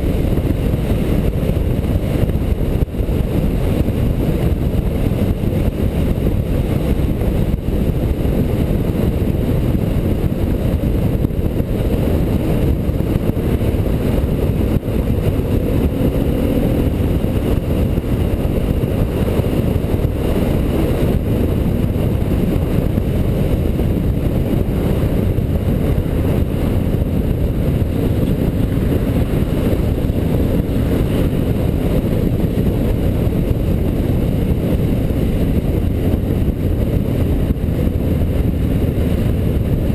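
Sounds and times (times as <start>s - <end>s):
motorcycle engine drone: 0.0s - 39.9s
wind buffeting microphone: 0.0s - 39.9s.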